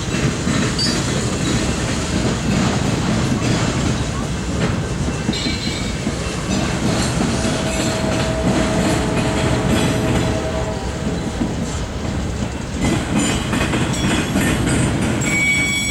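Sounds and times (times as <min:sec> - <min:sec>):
freight cars rumbling: 0:00.0 - 0:15.9
wheels clicking over rails: 0:00.0 - 0:15.9
thin steady whine: 0:06.7 - 0:12.5.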